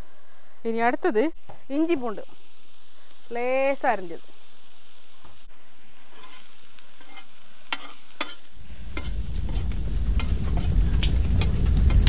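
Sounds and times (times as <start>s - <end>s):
onions sizzling in hot oil: 0.0s - 12.0s
low rumble: 8.8s - 12.0s.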